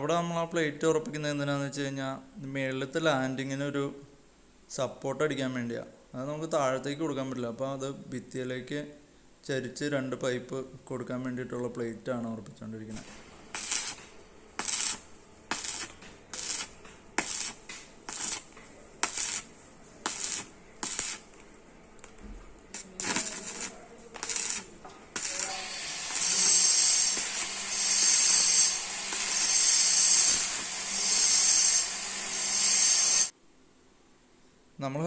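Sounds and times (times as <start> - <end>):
angle grinder on steel: 13.5 - 14.0, 14.6 - 21.2, 22.8 - 33.3
sharp metallic bursts: 13.5 - 21.3, 22.7 - 33.3.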